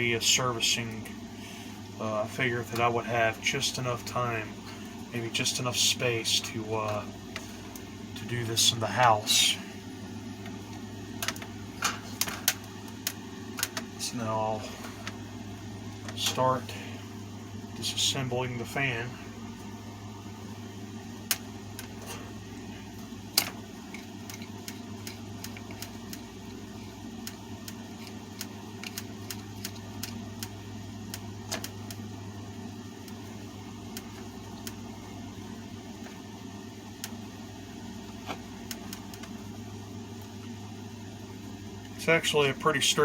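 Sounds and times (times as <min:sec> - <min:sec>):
steady low hum: 0:00.0 - 0:43.0
clicks and knocks of fan parts: 0:10.4 - 0:14.0, 0:21.2 - 0:32.1, 0:32.9 - 0:34.9, 0:38.0 - 0:39.4.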